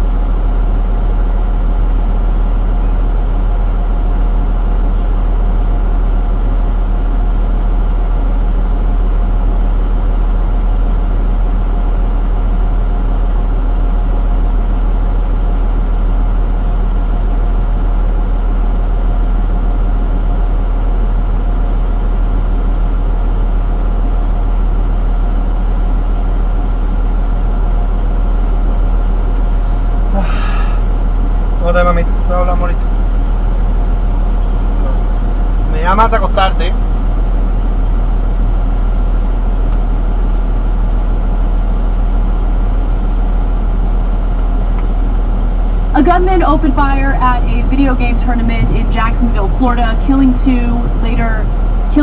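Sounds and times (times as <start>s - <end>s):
heavy engine idling: 0.0s - 52.0s.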